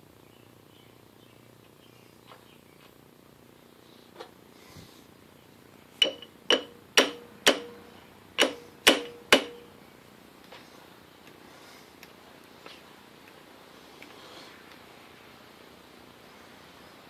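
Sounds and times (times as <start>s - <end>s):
metal-on-metal taps: 6.0s - 7.8s, 8.4s - 9.7s.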